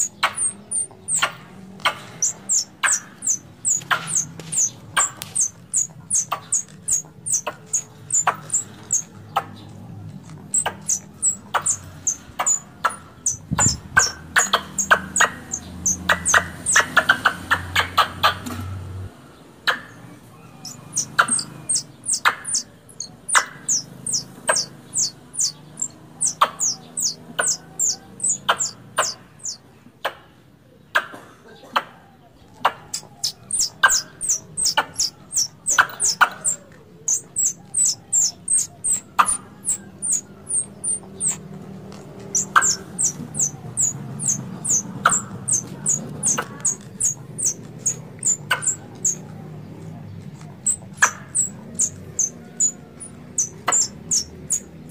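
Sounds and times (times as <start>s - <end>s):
squirrel chirping: 0.0s - 18.5s, 19.7s - 29.6s, 32.8s - 49.3s, 50.2s - 54.9s.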